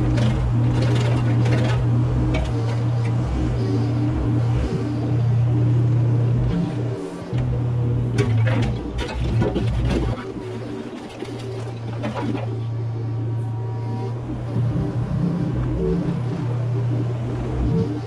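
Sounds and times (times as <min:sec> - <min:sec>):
excavator engine running: 0:00.0 - 0:18.0
knocks and clatter: 0:08.1 - 0:10.3.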